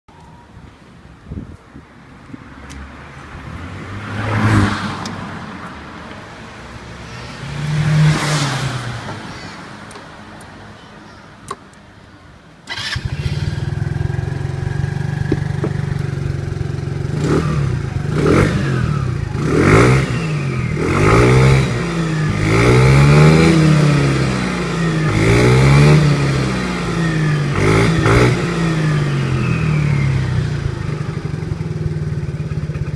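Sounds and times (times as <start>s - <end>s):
scooter engine idling and revving: 12.7s - 32.9s.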